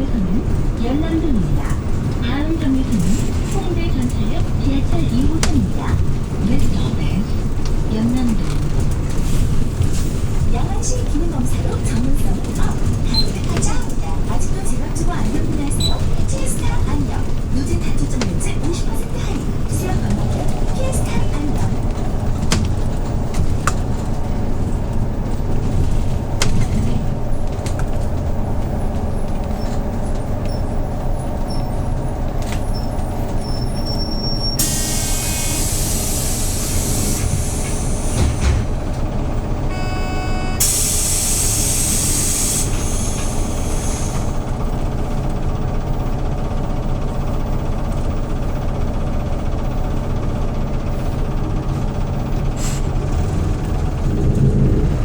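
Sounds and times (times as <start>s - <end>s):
bus engine running: 0.0s - 55.0s
compressed air hiss: 34.6s - 38.4s, 40.6s - 44.3s
short electronic beep: 39.7s - 40.7s.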